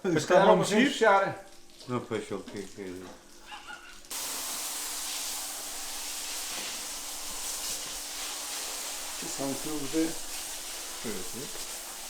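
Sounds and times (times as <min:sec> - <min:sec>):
liquid spraying hiss: 0:04.1 - 0:12.0.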